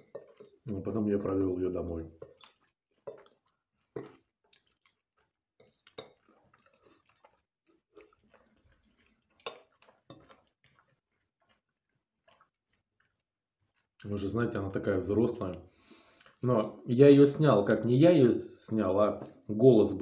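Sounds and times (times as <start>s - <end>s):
chewing mouth clicks: 2.2s - 14.1s, 16.1s - 16.4s.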